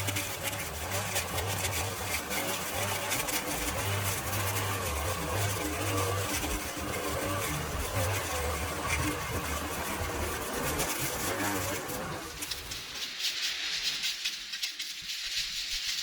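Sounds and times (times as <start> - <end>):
engine humming: 0.0 - 12.9.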